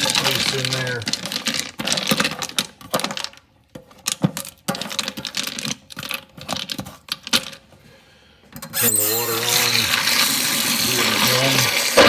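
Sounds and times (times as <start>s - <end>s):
ice cubes clattering in a sink: 0.0s - 7.7s, 8.8s - 12.0s.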